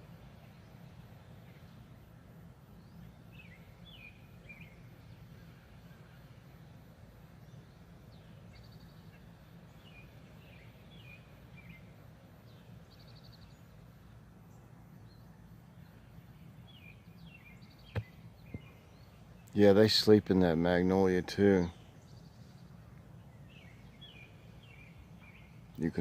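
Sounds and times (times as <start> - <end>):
songbirds chirping: 0.0 - 26.0
steady low hum: 0.0 - 26.0
bird trills: 2.8 - 6.6.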